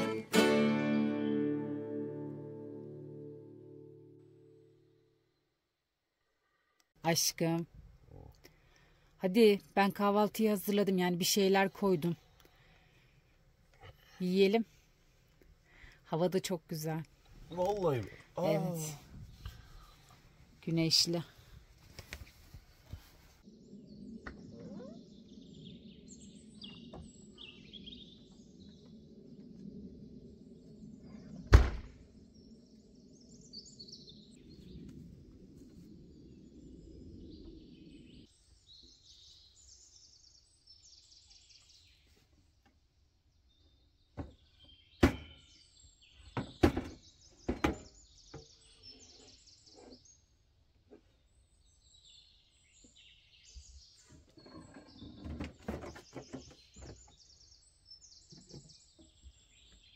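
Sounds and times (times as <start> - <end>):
small birds chirping: 6.4 - 42.4, 43.2 - 59.9
loud knock: 31.5 - 31.9.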